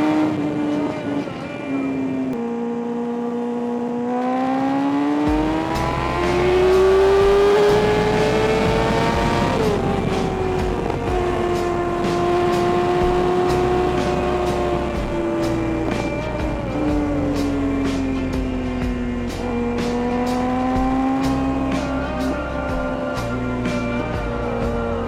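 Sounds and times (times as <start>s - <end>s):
motorcycle engine accelerating: 0.0s - 25.0s
wind rumble on microphone: 5.3s - 25.0s.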